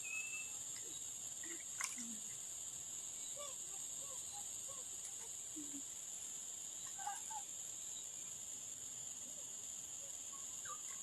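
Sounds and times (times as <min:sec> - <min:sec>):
high-pitched insect drone: 0:00.0 - 0:11.0
short chirping animal calls: 0:10.0 - 0:11.0.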